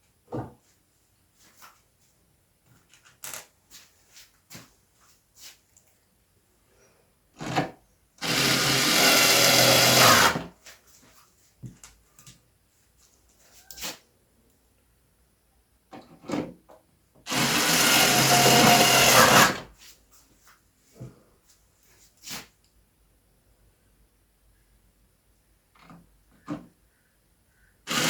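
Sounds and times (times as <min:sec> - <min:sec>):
electric screwdriver motor whine: 0:08.2 - 0:10.4, 0:17.3 - 0:19.6.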